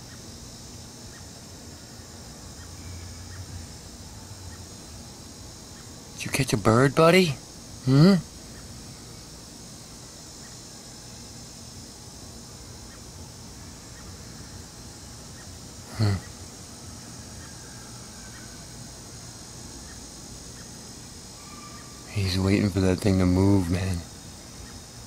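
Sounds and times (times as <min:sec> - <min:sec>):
faint chirps: 0:00.0 - 0:25.0
insects chorus: 0:00.0 - 0:25.0
short vocal sound: 0:07.8 - 0:08.3, 0:15.9 - 0:16.3.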